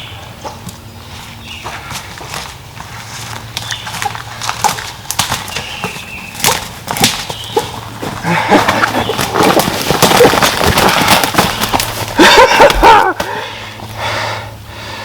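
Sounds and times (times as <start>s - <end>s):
crunching and rustling in dry leaves: 2.0s - 13.1s.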